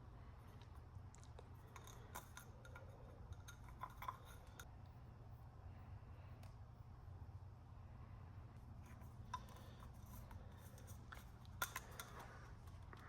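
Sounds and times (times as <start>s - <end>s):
low steady hum: 0.0s - 13.0s
small parts clicking and clinking: 1.4s - 4.7s, 9.3s - 13.0s.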